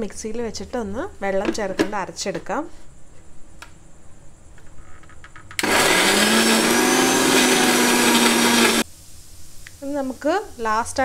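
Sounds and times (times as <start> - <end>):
mixer grinder motor whine: 5.6 - 8.8.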